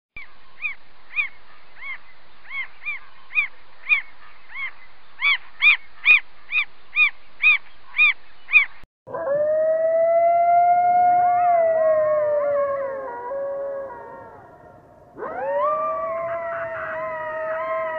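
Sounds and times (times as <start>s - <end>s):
wolf howling: 9.1s - 17.9s.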